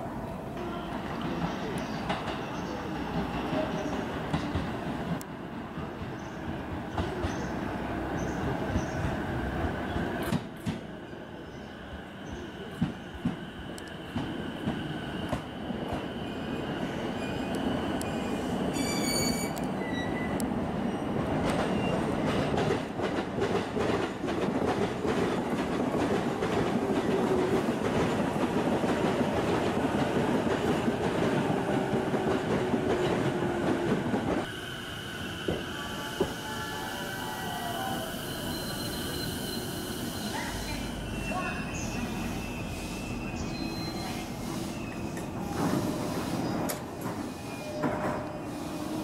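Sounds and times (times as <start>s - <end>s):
electric train braking: 34.5s - 49.0s.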